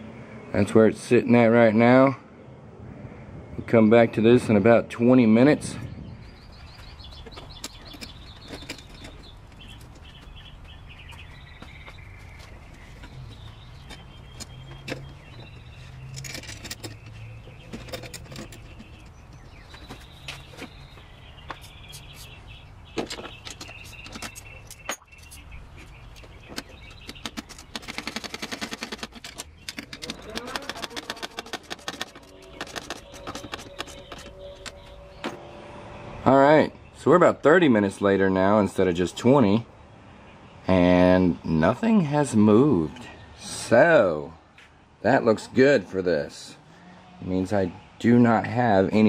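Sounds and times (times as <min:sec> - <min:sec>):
small birds chirping: 0:00.4 - 0:49.0
steady low rumble: 0:01.3 - 0:21.9
rapid clicking pulses: 0:26.6 - 0:35.0.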